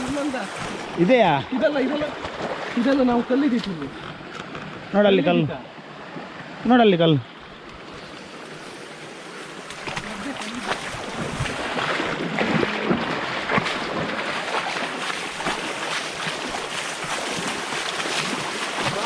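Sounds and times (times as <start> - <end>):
splashes and knocks: 0.0 - 4.8, 9.5 - 19.0
rushing stream water: 0.0 - 19.0.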